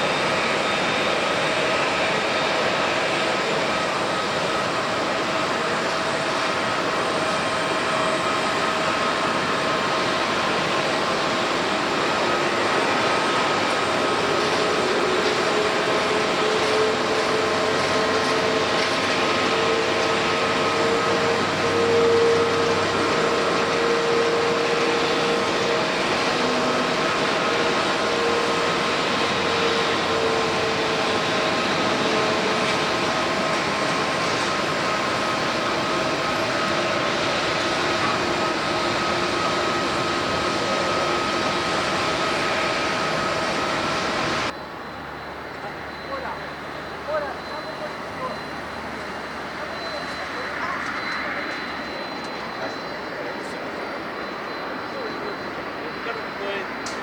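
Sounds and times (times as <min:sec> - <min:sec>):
jet engines whining: 0:00.0 - 0:57.0
low droning aircraft tone: 0:00.0 - 0:57.0.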